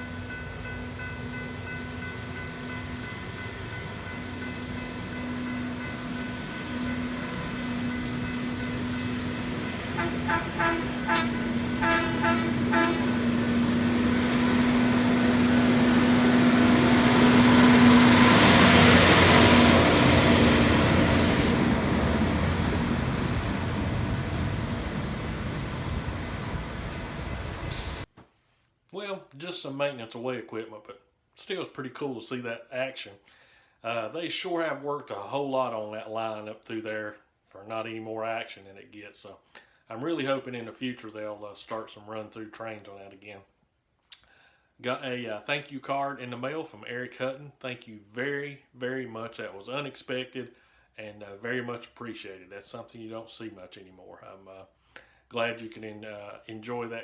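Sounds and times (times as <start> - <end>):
rail equipment engine drone: 0.0 - 28.1
rail noise: 0.0 - 28.1
short horn toots: 10.0 - 13.2.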